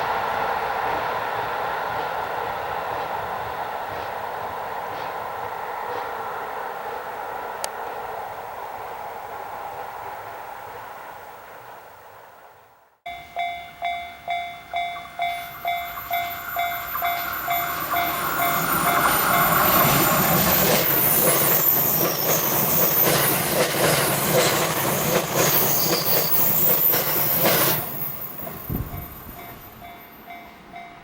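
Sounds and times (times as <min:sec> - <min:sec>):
electric train passing loudly: 0:00.0 - 0:31.0
level crossing warning bell: 0:13.1 - 0:24.1, 0:25.6 - 0:31.0.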